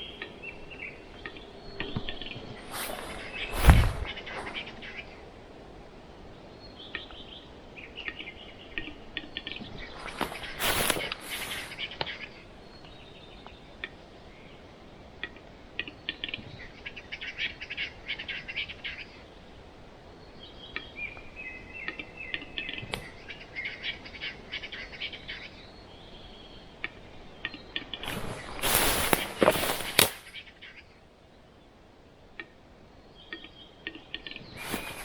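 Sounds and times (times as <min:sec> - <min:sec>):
small birds chirping: 0:00.0 - 0:35.0
loud crunching rustle: 0:02.3 - 0:04.8, 0:09.8 - 0:12.1, 0:27.8 - 0:30.4, 0:34.6 - 0:35.0.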